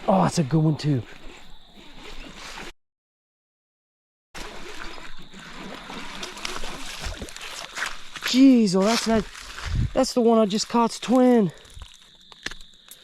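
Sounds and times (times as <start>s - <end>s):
creek water splashing and gurgling: 4.4s - 12.0s.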